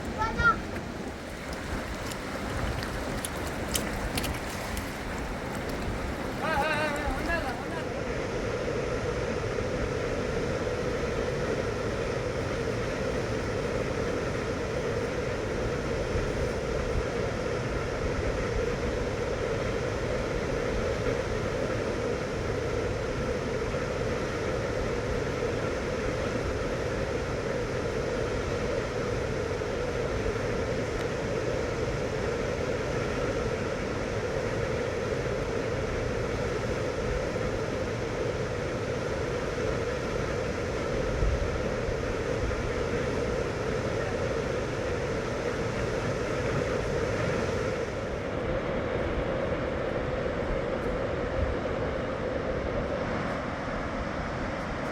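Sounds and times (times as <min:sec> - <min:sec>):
fast-flowing river rushing: 0:00.0 - 0:08.5.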